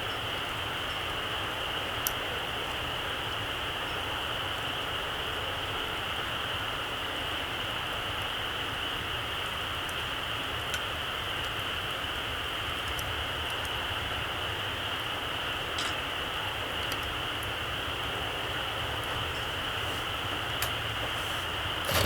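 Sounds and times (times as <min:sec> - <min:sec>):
campfire hissing: 0:00.0 - 0:22.0
fire crackles: 0:07.2 - 0:22.0.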